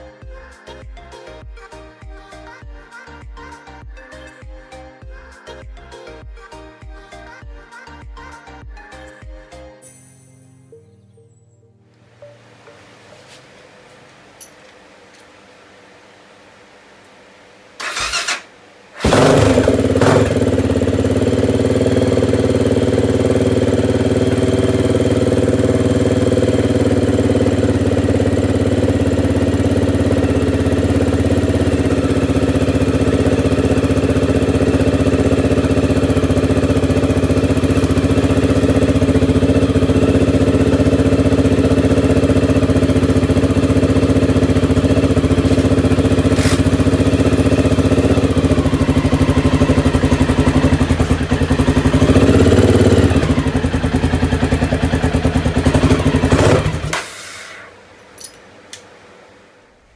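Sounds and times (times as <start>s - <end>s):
motorcycle engine starting and idling: 17.0s - 58.9s.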